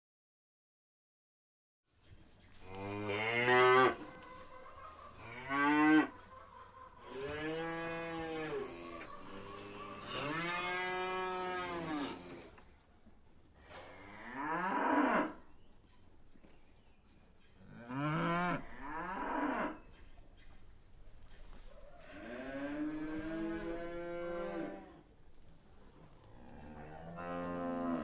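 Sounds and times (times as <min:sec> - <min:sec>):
cow mooing: 0:02.8 - 0:04.1, 0:07.1 - 0:12.5, 0:22.2 - 0:24.9, 0:26.4 - 0:28.0.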